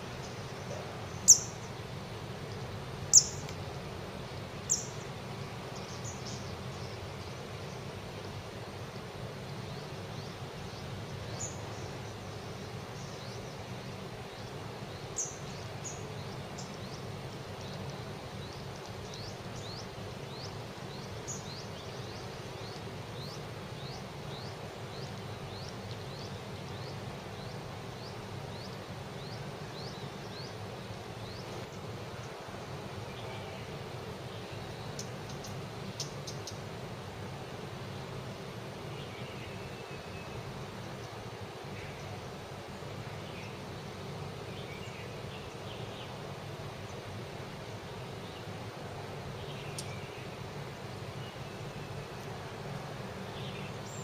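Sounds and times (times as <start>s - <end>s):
bird chip calls: 0.7s - 1.7s, 3.1s - 3.6s.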